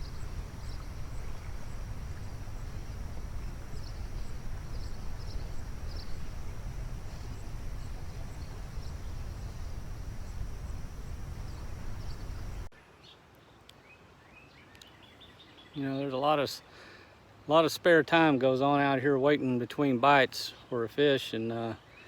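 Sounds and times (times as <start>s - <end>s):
creek water rushing: 0.0s - 12.7s
faint chirps: 0.0s - 12.7s.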